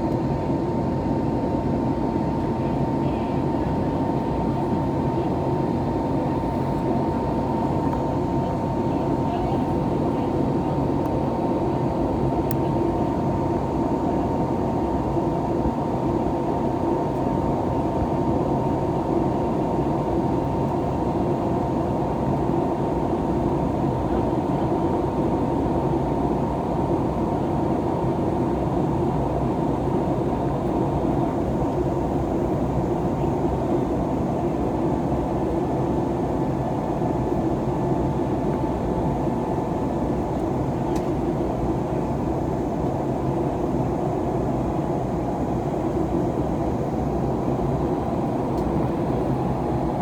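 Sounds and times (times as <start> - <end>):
airplane cabin engine noise: 0.0 - 50.0.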